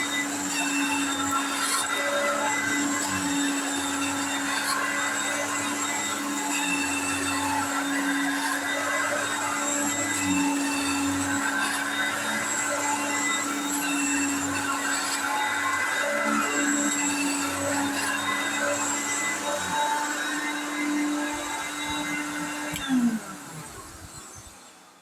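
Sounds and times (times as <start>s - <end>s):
vacuum cleaner running: 0.0s - 25.0s.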